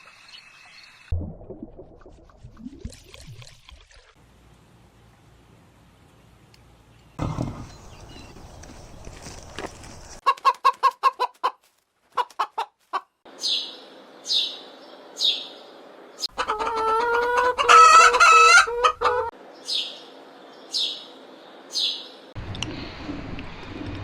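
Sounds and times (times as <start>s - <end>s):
chickens clucking: 10.2s - 13.2s, 16.2s - 19.3s
rooster crowing: 16.4s - 19.3s.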